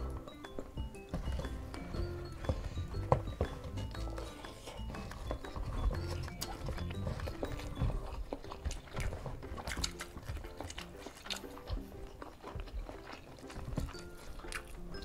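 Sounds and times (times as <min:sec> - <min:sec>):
chewing: 0:00.0 - 0:15.0
soft background music: 0:00.0 - 0:15.0
lip smacks: 0:04.5 - 0:15.0.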